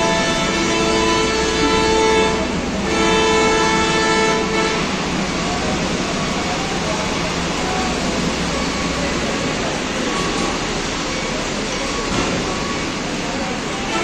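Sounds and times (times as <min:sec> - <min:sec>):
train horn two-note chord: 0:00.0 - 0:05.0
wagons rumbling on rails: 0:00.0 - 0:14.0.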